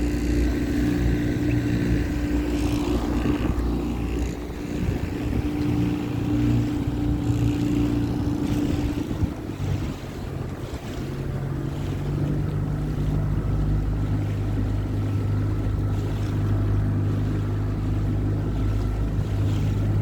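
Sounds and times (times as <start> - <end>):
motorboat engine running: 0.0 - 20.0
water noise: 0.0 - 20.0
wind buffeting microphone: 0.0 - 20.0.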